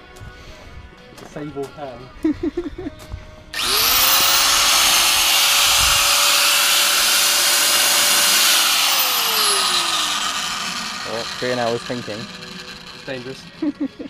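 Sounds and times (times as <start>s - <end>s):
angle grinder running: 3.6s - 13.9s.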